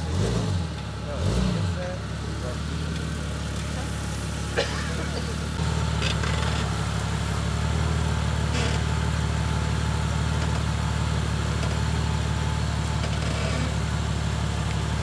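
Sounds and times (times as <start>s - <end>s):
vehicle engine running at low revs: 0.0s - 15.0s.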